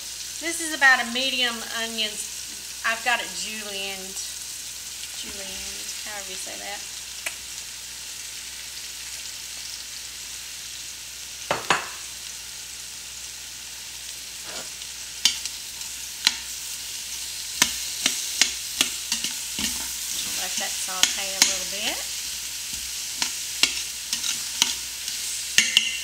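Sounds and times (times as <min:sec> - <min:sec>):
vegetables sizzling in hot oil: 0:00.0 - 0:26.0
metal tongs clicking on pot: 0:17.6 - 0:21.7, 0:23.2 - 0:26.0.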